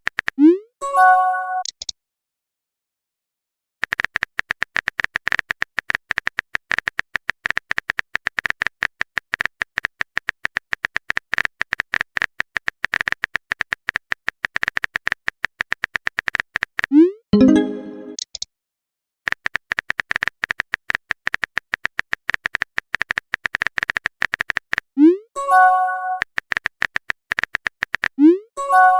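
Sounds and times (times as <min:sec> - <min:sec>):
typing clicks: 0:03.8 - 0:16.9, 0:19.3 - 0:24.8, 0:26.2 - 0:28.2.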